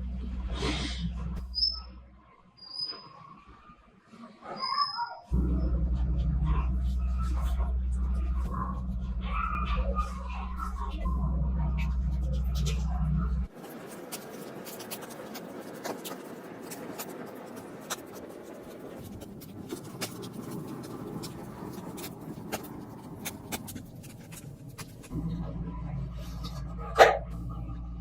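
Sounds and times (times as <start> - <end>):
low steady hum: 0.0 - 2.2, 5.3 - 28.0
dry scratching and scraping: 13.5 - 25.2.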